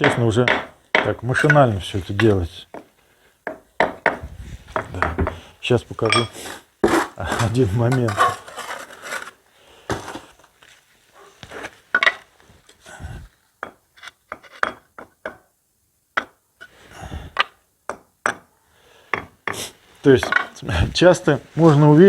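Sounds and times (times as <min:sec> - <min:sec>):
trowel tapping on brick: 0:00.0 - 0:02.9, 0:03.5 - 0:05.4, 0:13.6 - 0:15.5, 0:16.2 - 0:16.7, 0:17.4 - 0:18.5
trowel scraping mortar: 0:06.0 - 0:10.4.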